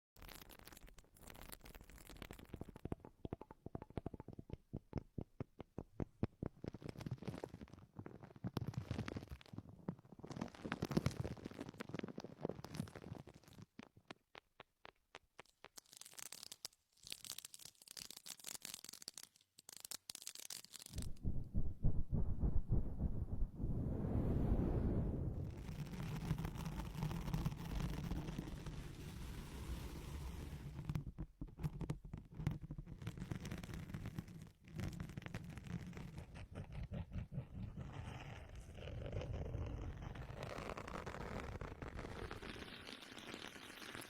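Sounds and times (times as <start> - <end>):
fast clicking and tapping: 2.4 - 6.9
scratchy rustling noise: 15.8 - 31.0.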